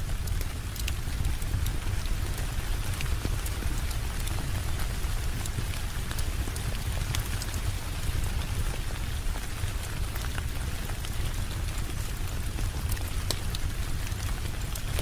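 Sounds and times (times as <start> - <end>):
rain drops ticking: 0.0 - 15.0
steady rain falling: 0.0 - 15.0.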